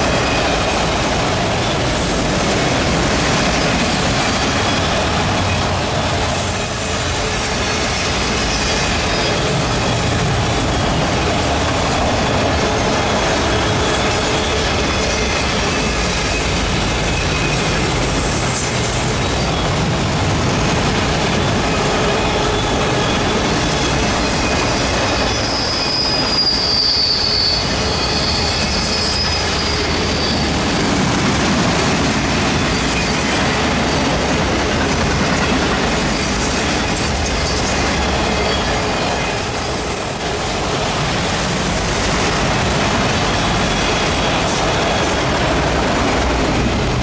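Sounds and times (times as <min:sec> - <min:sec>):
high-pitched wheel squeal: 0:00.0 - 0:02.1, 0:03.4 - 0:31.1, 0:35.4 - 0:41.4
train wheels rumbling on rail: 0:00.0 - 0:47.0.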